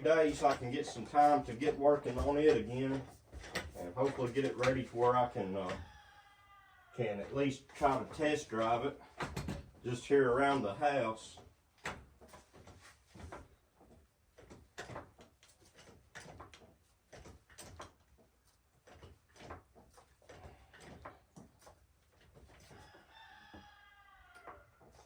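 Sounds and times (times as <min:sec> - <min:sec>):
faint clicks and knocks: 0:00.3 - 0:05.9, 0:11.2 - 0:25.0
rooster crowing: 0:05.8 - 0:07.0, 0:22.8 - 0:24.8.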